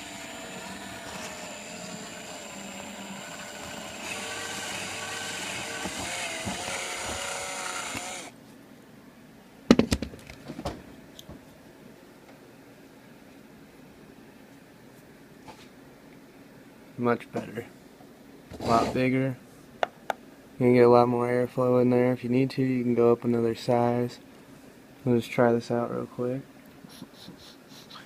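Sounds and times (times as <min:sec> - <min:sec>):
electric drill whining into metal: 0:00.0 - 0:08.3.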